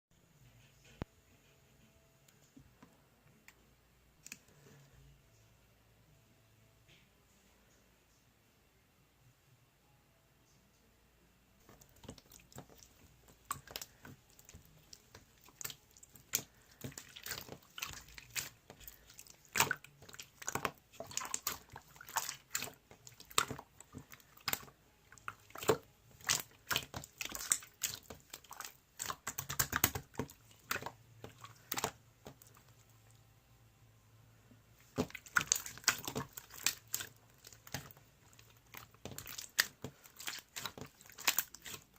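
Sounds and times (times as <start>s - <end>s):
slime squished by hand: 11.7s - 32.9s, 34.8s - 41.9s.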